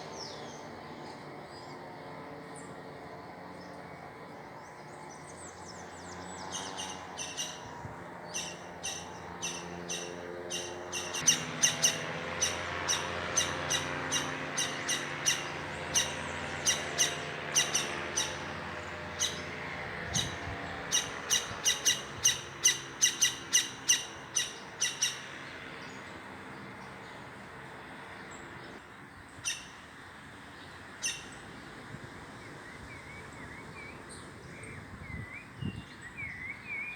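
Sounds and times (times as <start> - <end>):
bird calling sharp notes: 8.4 - 18.6, 20.2 - 25.4.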